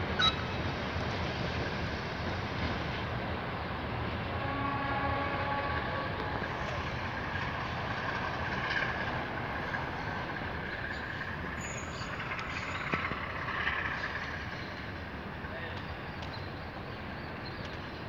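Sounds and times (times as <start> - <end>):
freight train rumbling: 0.0 - 18.0
train horn: 4.3 - 6.7.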